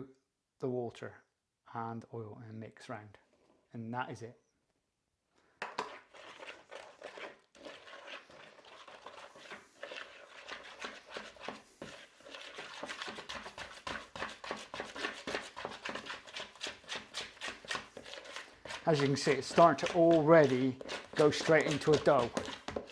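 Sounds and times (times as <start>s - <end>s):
spoon scraping and knocking in pot: 5.6s - 22.9s.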